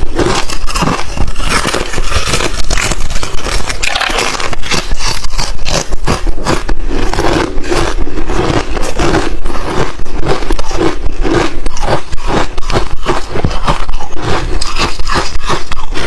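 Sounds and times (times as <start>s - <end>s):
chewing ice chips: 0.0s - 16.0s.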